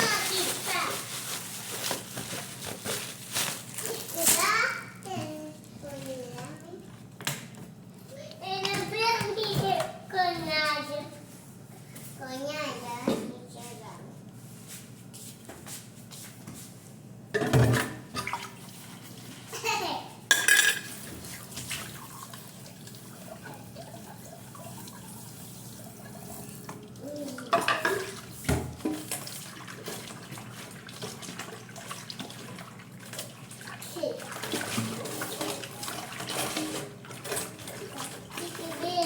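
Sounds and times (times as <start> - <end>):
water running: 0.0 - 4.8, 17.6 - 39.0.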